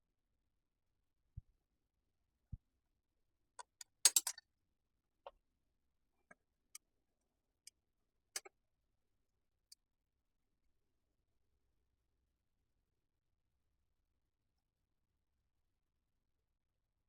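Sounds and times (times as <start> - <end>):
small parts clicking and tapping: 3.6 - 4.4, 8.4 - 8.6.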